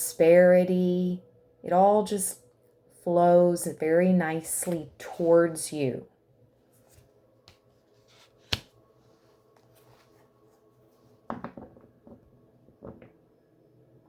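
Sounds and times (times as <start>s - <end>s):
faint steady hum: 0.0s - 14.0s
cards tapping and clicking: 8.4s - 8.7s.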